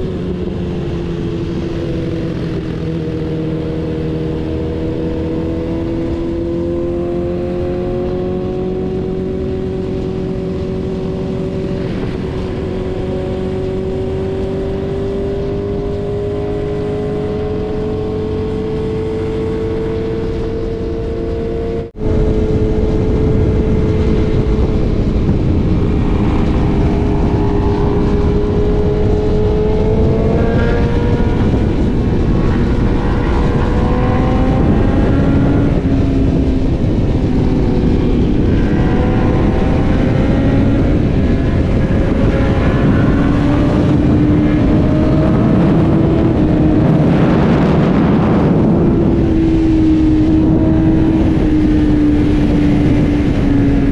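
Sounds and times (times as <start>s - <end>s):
motorcycle engine accelerating: 0.0s - 53.9s
wind rush on microphone: 0.0s - 53.9s.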